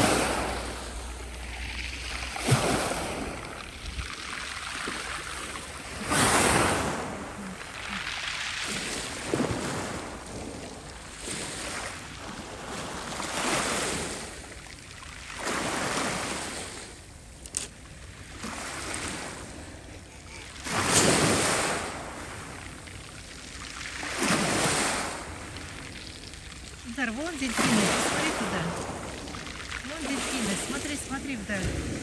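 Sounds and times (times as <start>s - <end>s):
waves breaking on shore: 0.0s - 32.0s.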